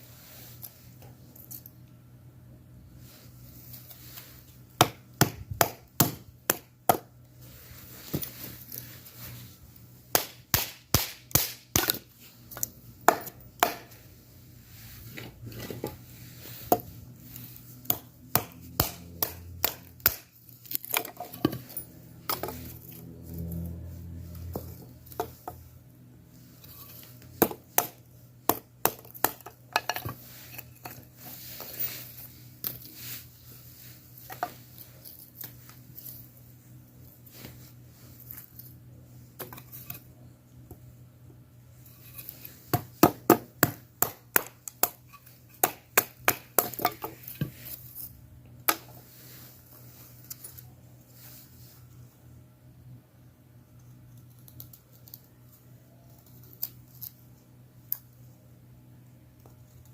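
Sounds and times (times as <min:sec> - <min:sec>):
faint low hum: 0:11.5 - 0:45.9.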